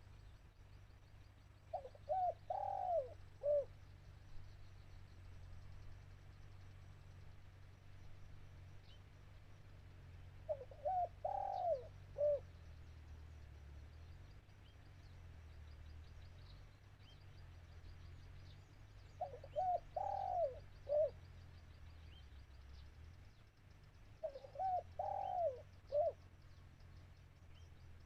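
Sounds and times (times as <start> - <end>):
dove cooing: 1.7 - 3.7, 10.4 - 12.5, 19.2 - 21.2, 24.2 - 26.2.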